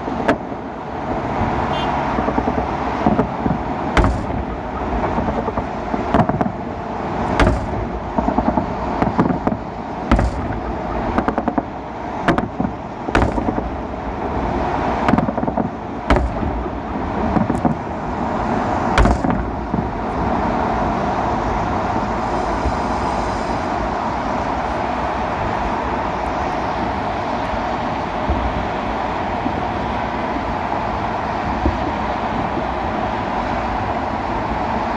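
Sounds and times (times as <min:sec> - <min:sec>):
city traffic rumble: 0:00.0 - 0:34.9
wind: 0:00.0 - 0:34.9
fireworks bursting with bangs: 0:02.2 - 0:20.2.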